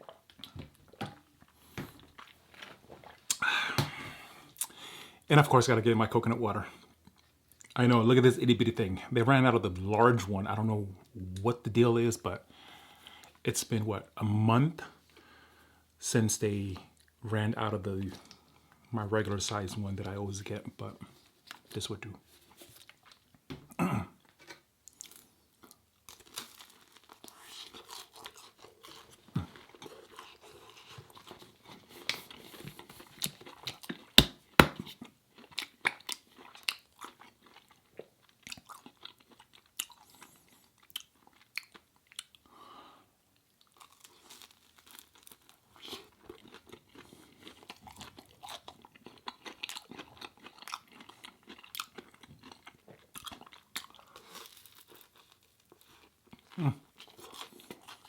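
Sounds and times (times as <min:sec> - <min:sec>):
person chewing crunchy food: 0:00.0 - 0:04.8, 0:24.1 - 0:42.5, 0:43.6 - 0:58.0.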